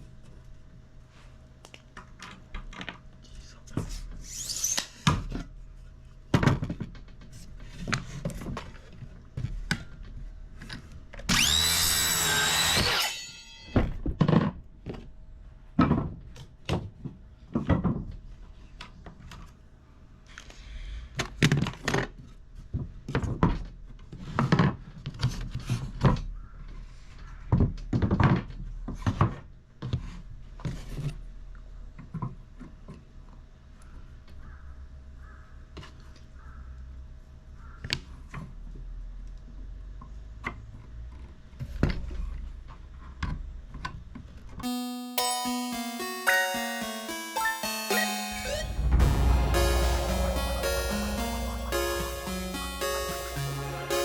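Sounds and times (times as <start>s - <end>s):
power tool running: 11.3s - 13.4s.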